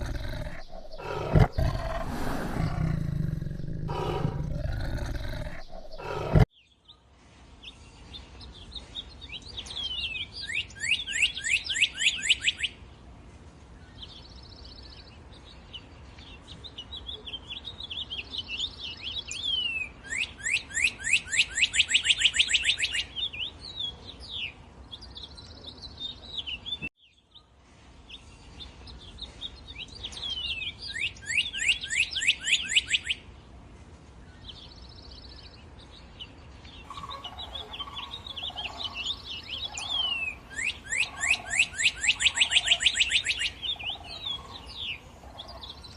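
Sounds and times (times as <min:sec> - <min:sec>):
loud low animal sound: 0:00.0 - 0:06.5
songbird singing: 0:00.0 - 0:13.0, 0:13.6 - 0:33.6, 0:34.2 - 0:45.9.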